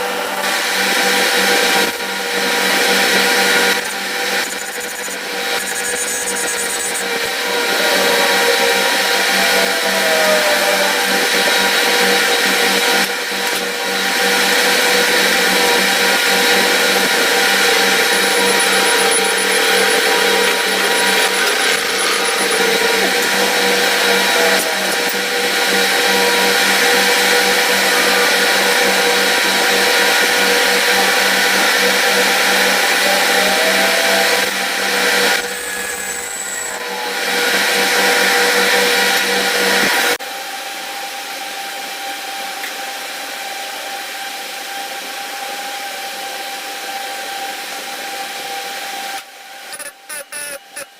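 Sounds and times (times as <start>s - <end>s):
machine motor hum and whine: 0.0s - 50.9s
short sliding squeals: 4.4s - 7.0s.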